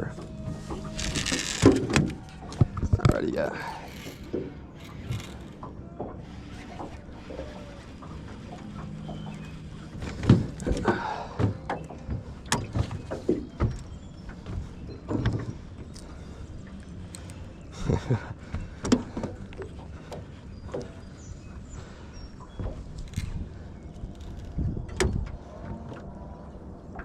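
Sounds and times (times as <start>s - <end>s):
knocks of fishing gear and boat: 0.1s - 16.3s, 18.4s - 21.1s.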